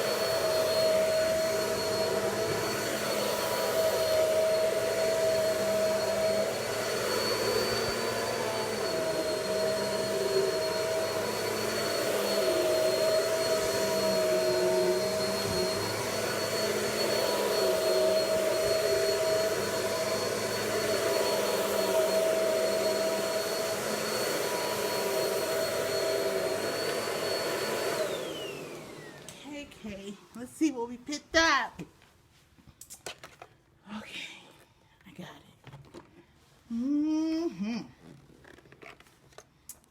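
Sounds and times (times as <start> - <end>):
vacuum cleaner running: 0.0 - 30.2.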